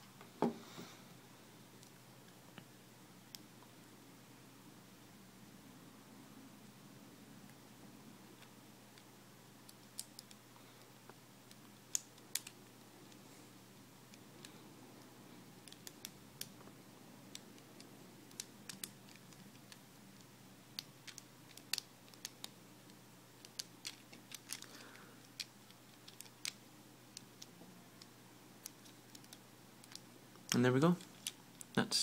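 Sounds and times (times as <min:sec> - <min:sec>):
plastic puzzle pieces clicking: 0:20.8 - 0:22.5, 0:23.4 - 0:24.7, 0:25.3 - 0:27.5.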